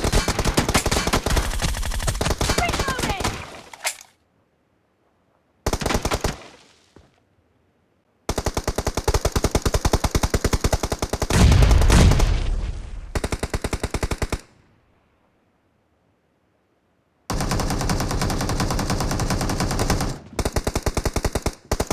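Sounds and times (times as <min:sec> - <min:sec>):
video game automatic gunfire: 0:17.3 - 0:21.9.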